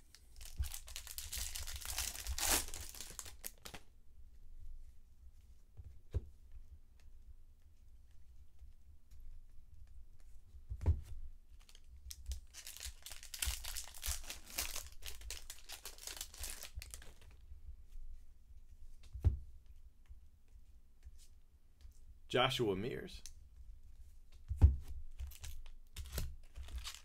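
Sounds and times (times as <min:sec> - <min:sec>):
wrapper tearing and crinkling: 0:00.4 - 0:03.8, 0:11.6 - 0:17.3, 0:25.3 - 0:27.0
thump: 0:24.5 - 0:24.9.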